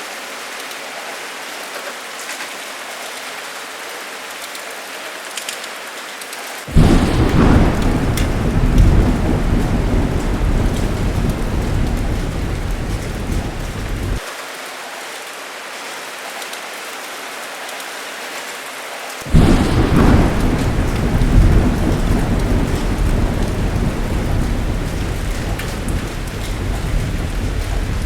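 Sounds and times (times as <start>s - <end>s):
heavy rain: 0.0s - 28.0s
thunder rumbling: 6.7s - 14.2s, 19.3s - 28.0s.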